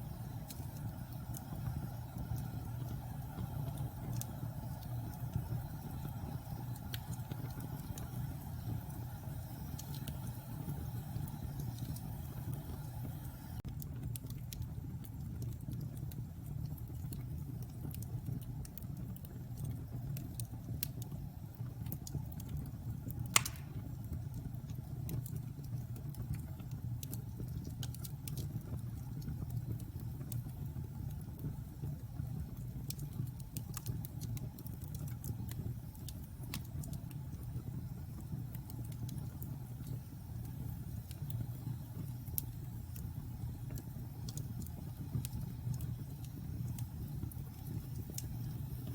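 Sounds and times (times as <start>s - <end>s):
wood fire rumbling and crackling: 0.0s - 48.9s
loud pop of fire: 23.3s - 24.0s.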